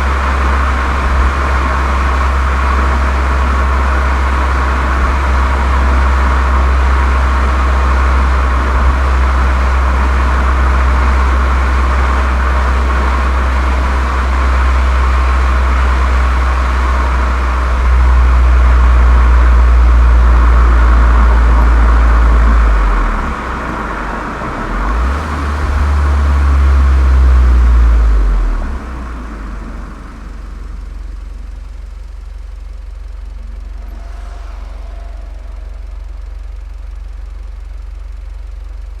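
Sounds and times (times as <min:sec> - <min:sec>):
car engine deep drone: 0:00.0 - 0:39.0
rushing hiss: 0:33.4 - 0:37.3.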